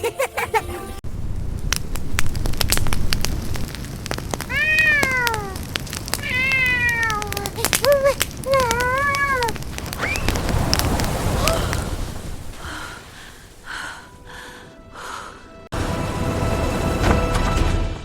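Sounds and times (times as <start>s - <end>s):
steady low rumble: 1.0s - 4.6s
crackling clicks: 1.4s - 11.9s
kitten meowing: 4.5s - 5.6s, 6.2s - 7.5s.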